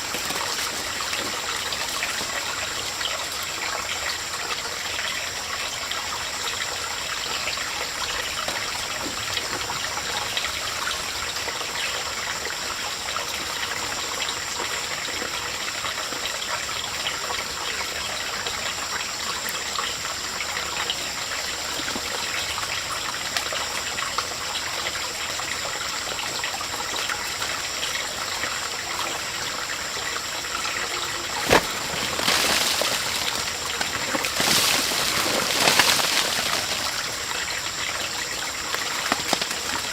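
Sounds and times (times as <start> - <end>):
running water rushing: 0.0 - 14.5, 27.4 - 39.9.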